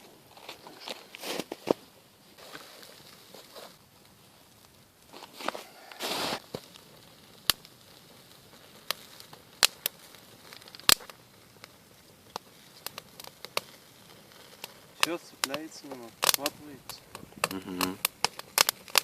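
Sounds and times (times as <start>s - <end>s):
campfire crackling: 0.0s - 19.0s
low hiss: 0.0s - 19.0s.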